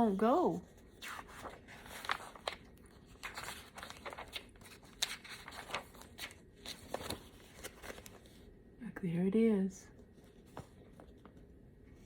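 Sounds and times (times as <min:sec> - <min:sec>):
paper pages rustling: 0:00.7 - 0:08.5, 0:10.0 - 0:11.6.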